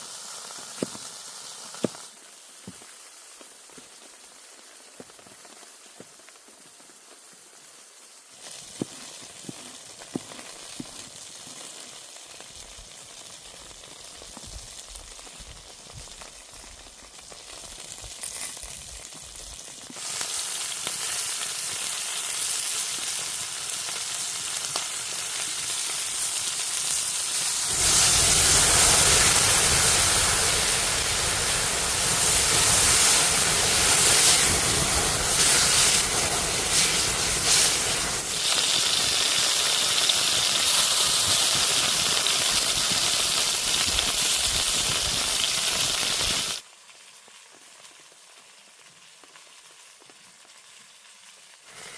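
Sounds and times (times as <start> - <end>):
hot oil sizzling: 0.0 - 5.9, 7.0 - 51.9.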